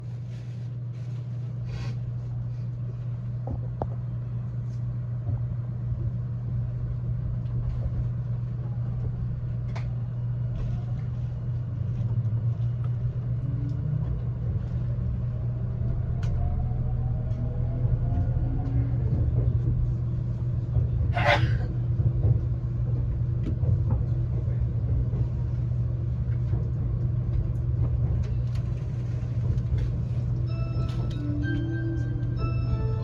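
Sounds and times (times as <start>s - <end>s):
train cabin running rumble: 0.0s - 33.0s
rising whine: 15.2s - 19.0s.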